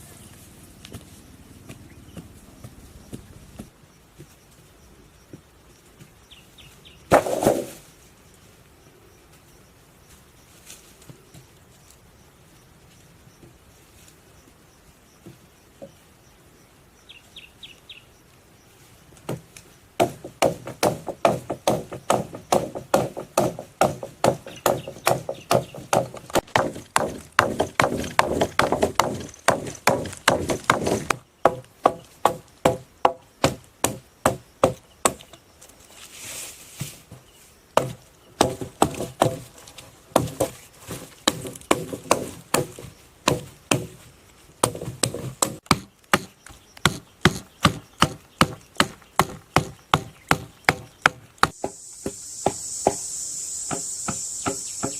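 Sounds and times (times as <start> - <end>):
wood being chopped: 7.1 - 7.7, 19.3 - 35.3, 37.8 - 39.5, 40.1 - 44.0, 44.6 - 52.2.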